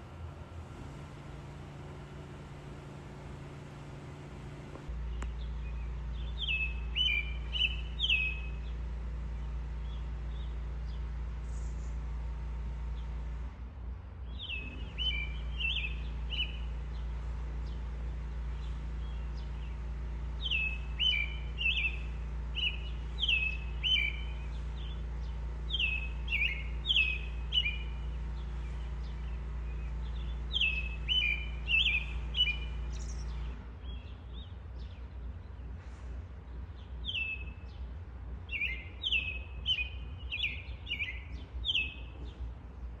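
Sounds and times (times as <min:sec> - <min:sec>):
songbird singing: 0:00.0 - 0:13.4, 0:14.2 - 0:43.0
steady low hum: 0:00.0 - 0:43.0.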